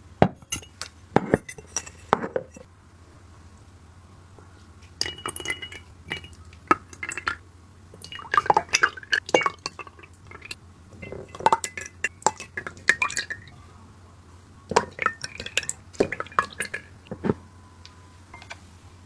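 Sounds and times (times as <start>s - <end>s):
utensils clinking against glass bowls: 0.4s - 2.7s, 4.8s - 7.4s, 8.0s - 13.6s, 14.7s - 17.4s.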